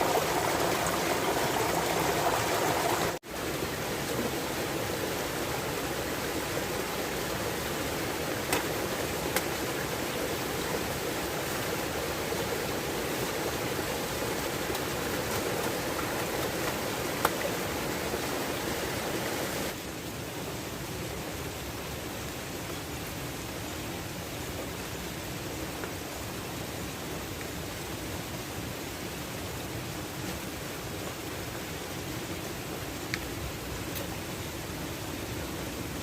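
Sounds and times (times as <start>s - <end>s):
running water rushing: 0.0s - 20.0s.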